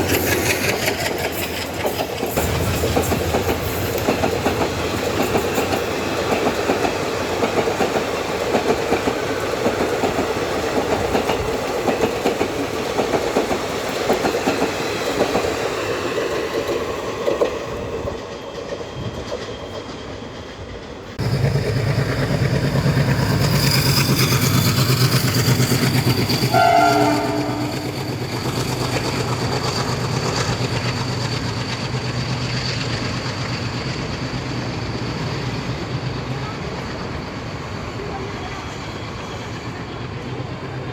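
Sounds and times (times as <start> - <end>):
train wheels clattering over rails: 0.0 - 40.9
locomotive hum and whine: 17.7 - 40.9
train horn blast: 26.5 - 28.3.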